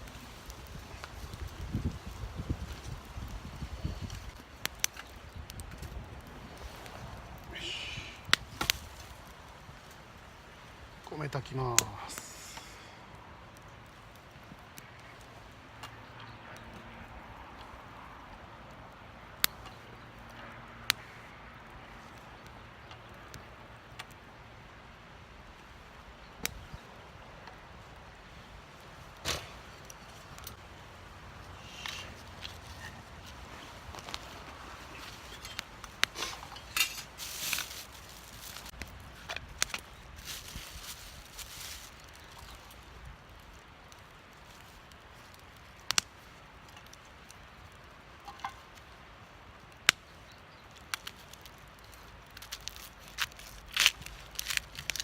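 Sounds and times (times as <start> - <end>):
low steady background noise: 0.0 - 55.0
wood fire crackling in a stove: 0.0 - 55.0.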